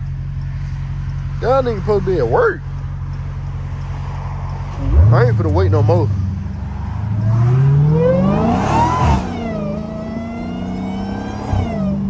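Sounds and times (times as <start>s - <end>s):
car engine accelerating hard: 3.8s - 12.0s.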